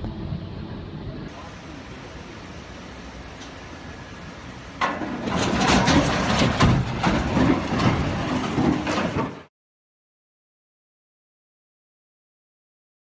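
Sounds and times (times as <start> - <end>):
low steady rumble: 0.0 - 9.0
clattering banging impacts: 4.6 - 9.5
loud crash: 4.8 - 9.5.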